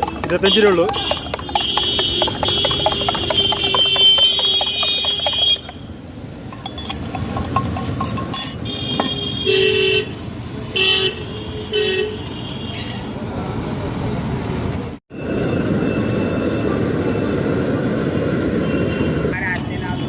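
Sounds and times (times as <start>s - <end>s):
rapid clatter: 0.0s - 5.8s, 6.5s - 9.1s
street traffic: 0.0s - 20.0s
vehicle horns honking: 0.1s - 5.9s, 8.4s - 13.0s.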